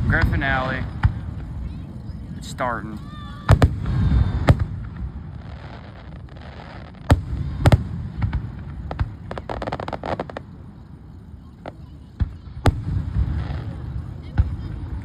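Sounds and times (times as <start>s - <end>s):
fireworks bangs: 0.0s - 15.0s
fireworks crackling pops: 0.0s - 15.0s.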